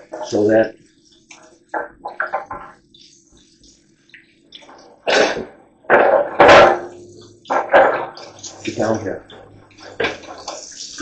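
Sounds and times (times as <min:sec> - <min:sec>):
scraping and washing tools: 0:05.9 - 0:11.0.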